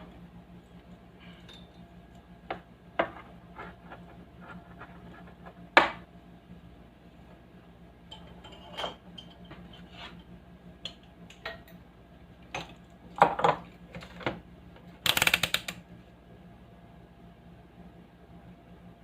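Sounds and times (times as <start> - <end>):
small hard parts clicking: 15.0 - 15.8.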